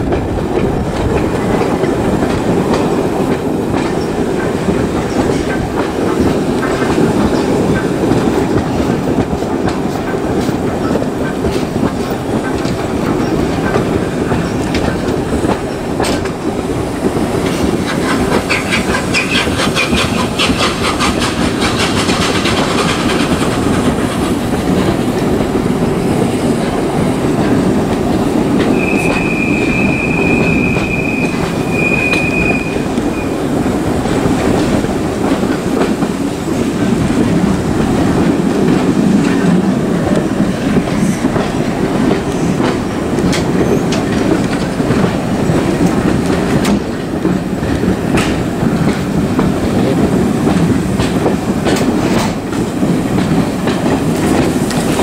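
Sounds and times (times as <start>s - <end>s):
train coach rumble: 0.0s - 55.0s
high wheel squeal: 28.7s - 33.4s.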